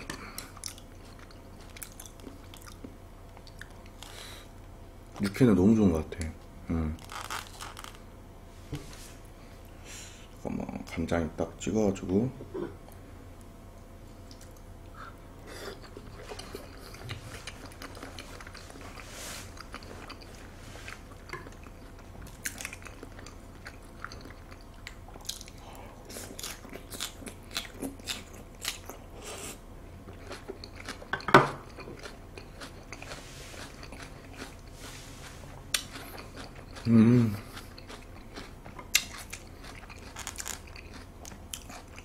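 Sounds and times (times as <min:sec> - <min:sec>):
man chewing soft food: 0:00.0 - 0:05.3, 0:07.0 - 0:08.1, 0:14.0 - 0:42.0
crunching lettuce: 0:06.9 - 0:08.0, 0:31.7 - 0:42.0.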